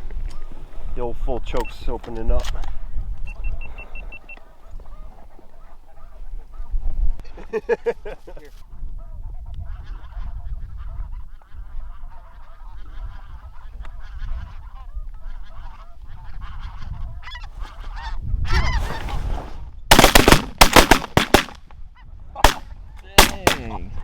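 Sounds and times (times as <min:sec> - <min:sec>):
loud shotgun blasts: 0:19.9 - 0:21.6, 0:22.4 - 0:22.6, 0:23.2 - 0:23.8.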